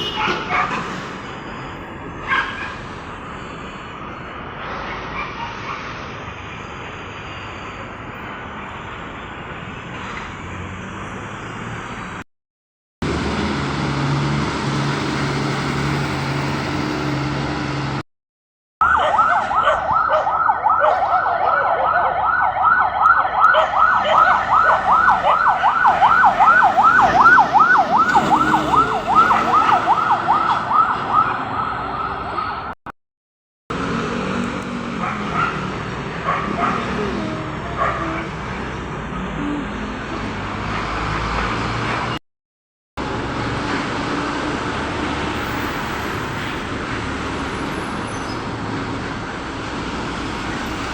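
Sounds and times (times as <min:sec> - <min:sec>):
road traffic: 0:00.0 - 0:12.3, 0:13.0 - 0:18.1, 0:18.8 - 0:32.9, 0:33.7 - 0:42.2, 0:43.0 - 0:50.9
emergency siren yelping: 0:18.8 - 0:32.8.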